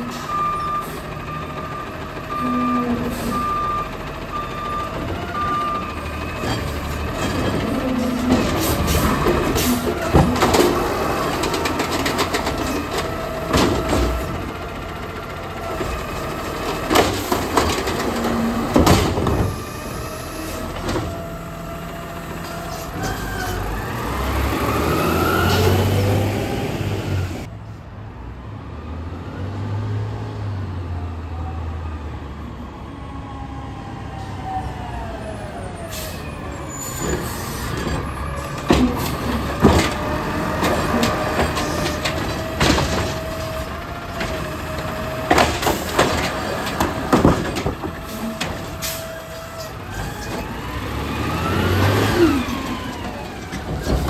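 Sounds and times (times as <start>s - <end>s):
garbage truck engine revving: 0.0s - 27.5s, 33.8s - 54.0s
sharp bangs and knocks: 4.9s - 14.9s, 15.8s - 21.3s, 37.0s - 54.0s.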